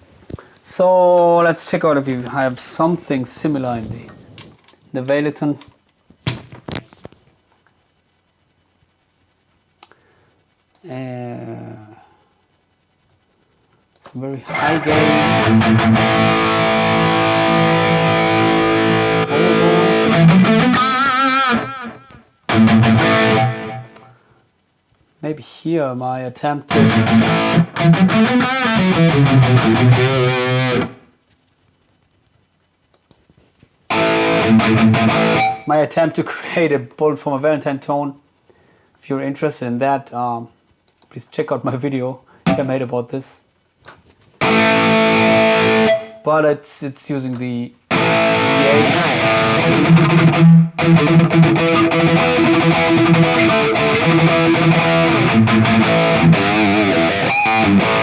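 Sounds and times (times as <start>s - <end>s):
distorted electric guitar riff: 14.4s - 24.2s, 26.7s - 31.1s, 33.9s - 35.7s, 42.5s - 42.8s, 44.4s - 46.3s, 47.9s - 58.0s.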